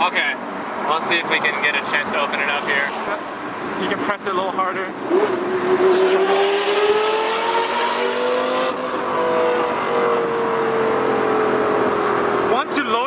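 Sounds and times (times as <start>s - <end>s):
sports car engine revving: 4.9s - 12.6s.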